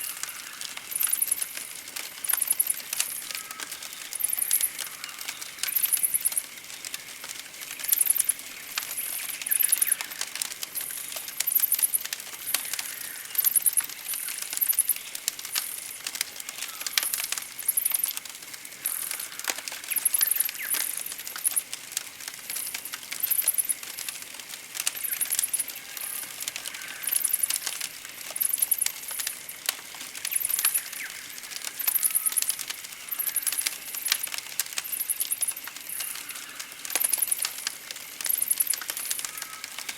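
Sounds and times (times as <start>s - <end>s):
campfire crackling and popping: 0.0s - 39.9s
high-pitched trilling bird calls: 31.8s - 33.6s.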